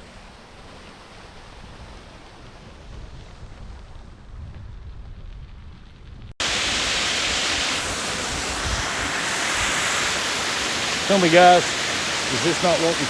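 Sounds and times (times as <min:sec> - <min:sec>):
water rushing: 0:06.4 - 0:13.0.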